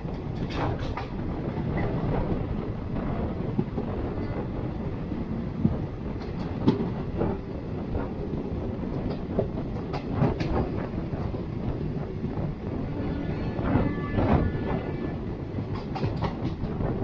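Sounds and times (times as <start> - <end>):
train rumbling along track: 0.0 - 17.0.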